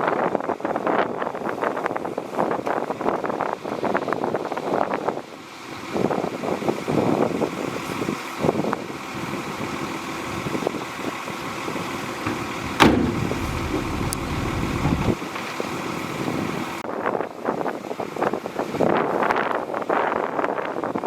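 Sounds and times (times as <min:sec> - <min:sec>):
bulldozer diesel engine running: 0:07.4 - 0:16.7
sharp knock: 0:12.3 - 0:15.0.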